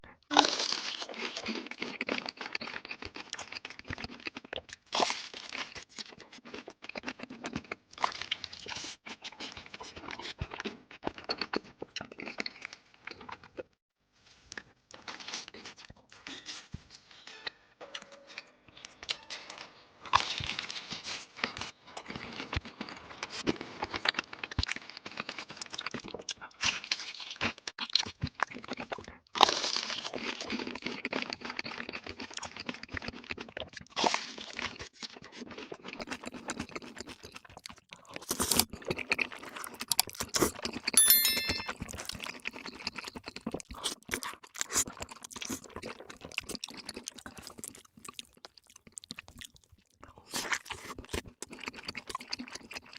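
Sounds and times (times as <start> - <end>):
high ringing tone: 41.0 - 41.8.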